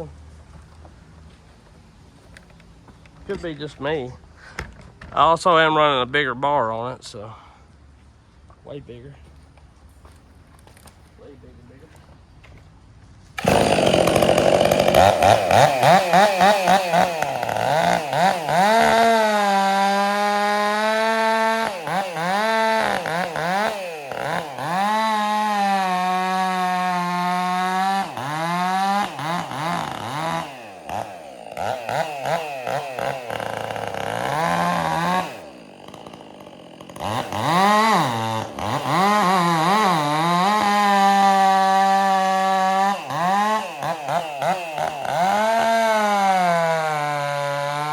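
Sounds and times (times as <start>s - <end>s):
chainsaw cutting wood: 13.3s - 47.9s.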